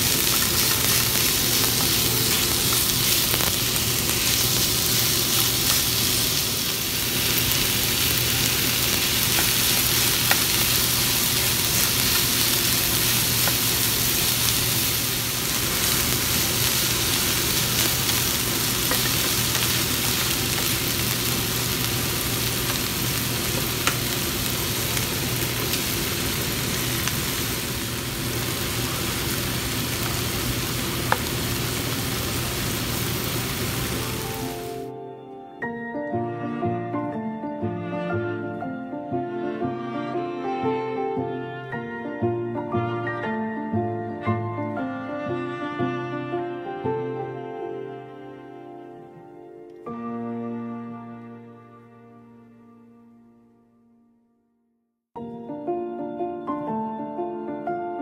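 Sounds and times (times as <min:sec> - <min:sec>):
egg frying: 0:00.0 - 0:34.9
food sizzling in a frying pan: 0:00.0 - 0:34.9.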